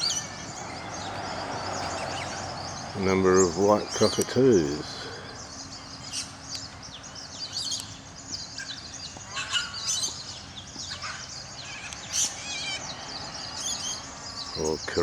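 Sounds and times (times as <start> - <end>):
harsh bird squawks: 0.0 - 1.1, 8.4 - 15.0
birds chirping: 0.0 - 15.0.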